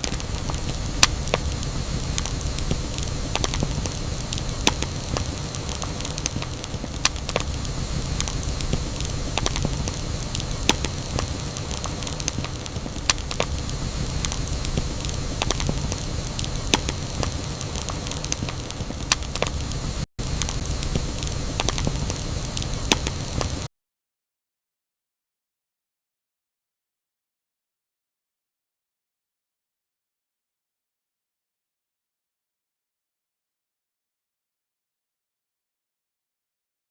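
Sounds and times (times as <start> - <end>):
burning wood crackling: 0.0 - 23.7
campfire flames hissing: 0.0 - 23.7.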